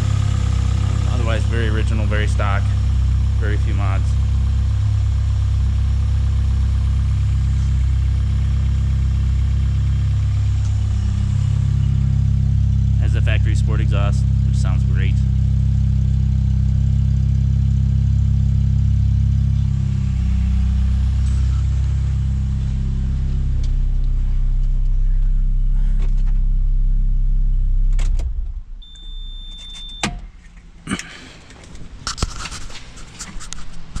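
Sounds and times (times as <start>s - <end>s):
car engine idling: 0.0s - 34.0s
short high beep: 28.8s - 30.1s.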